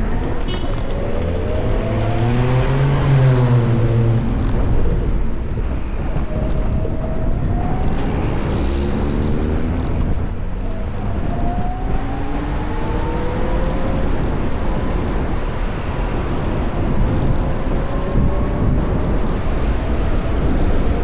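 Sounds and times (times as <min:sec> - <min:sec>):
traffic: 0:00.0 - 0:21.0
wind rumble on microphone: 0:00.0 - 0:21.0.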